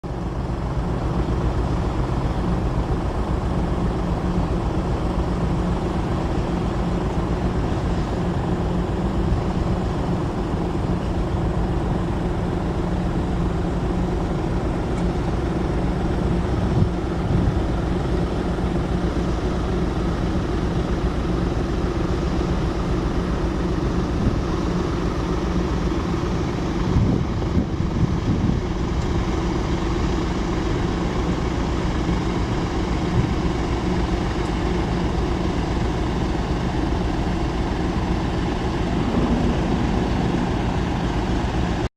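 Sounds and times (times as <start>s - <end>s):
heavy engines droning: 0.0s - 41.9s.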